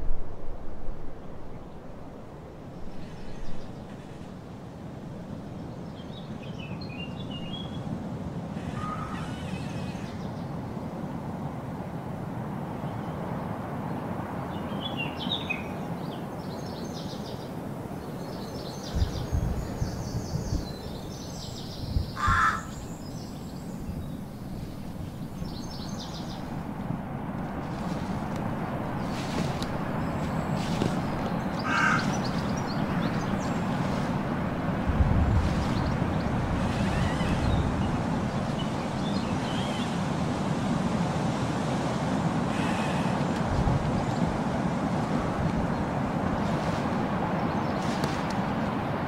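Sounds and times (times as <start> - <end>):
outdoor background noise: 0.0 - 49.0.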